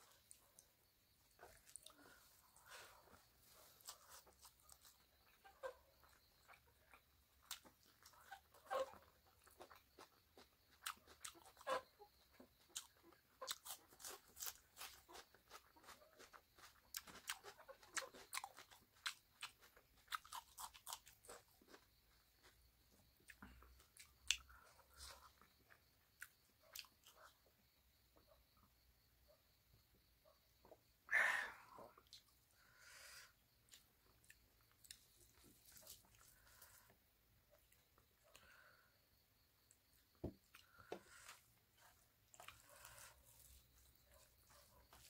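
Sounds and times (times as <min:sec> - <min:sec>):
person chewing wetly: 0:01.4 - 0:02.2, 0:06.4 - 0:08.1, 0:08.9 - 0:11.6, 0:12.6 - 0:21.8, 0:33.7 - 0:36.7, 0:41.8 - 0:45.0.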